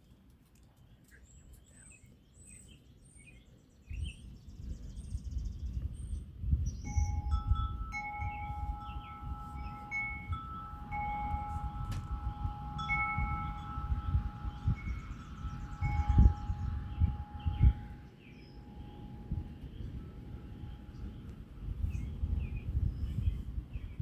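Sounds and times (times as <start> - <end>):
birds chirping: 0.8 - 24.0
wind buffeting the microphone: 3.7 - 24.0
wind chimes ringing: 6.8 - 23.5.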